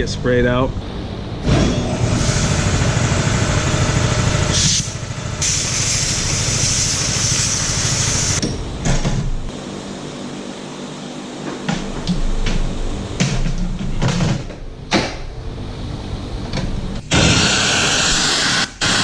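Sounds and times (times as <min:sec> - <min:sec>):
skid steer engine running: 0:01.4 - 0:08.4
loud hiss: 0:04.4 - 0:08.4, 0:17.1 - 0:19.0.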